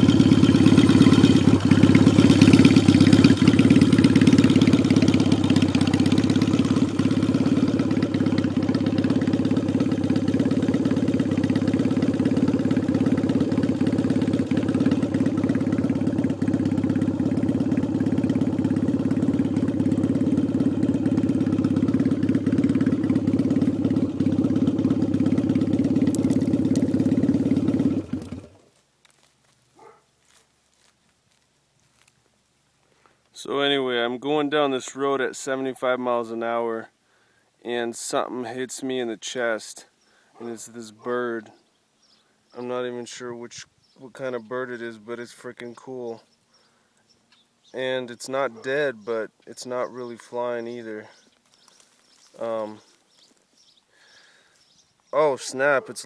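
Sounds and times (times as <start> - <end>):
motorcycle engine running: 0.0 - 30.9, 47.3 - 56.0.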